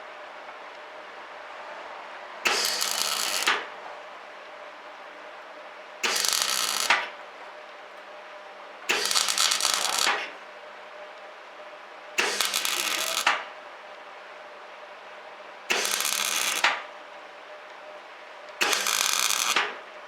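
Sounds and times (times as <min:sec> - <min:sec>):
welding arc crackling: 0:02.5 - 0:03.6, 0:06.0 - 0:07.0, 0:08.9 - 0:10.2, 0:12.2 - 0:13.4, 0:15.7 - 0:16.8, 0:18.6 - 0:19.6.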